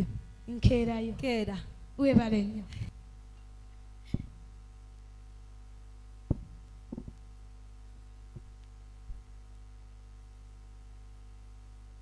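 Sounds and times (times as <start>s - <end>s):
electrical mains hum: 0.0s - 12.0s
dull thumps: 2.0s - 2.5s, 4.0s - 4.6s, 6.2s - 7.2s.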